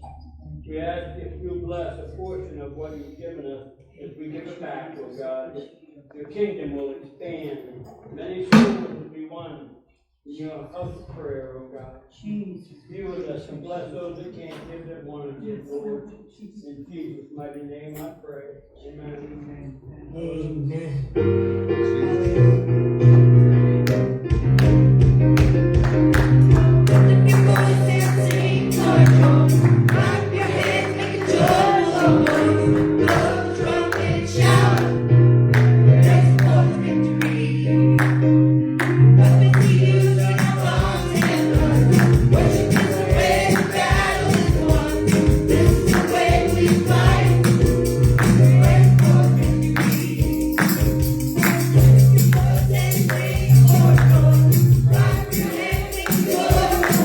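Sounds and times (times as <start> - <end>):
live gospel music: 8.5 - 9.1, 21.2 - 57.0.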